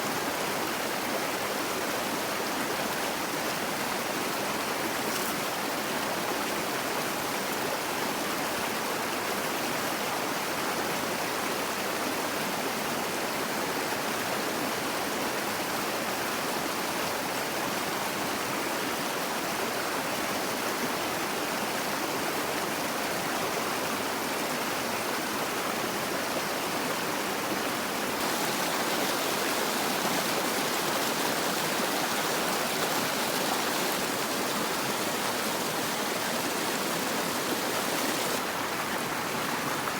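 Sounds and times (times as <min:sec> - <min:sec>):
running water rushing: 0:22.5 - 0:39.9.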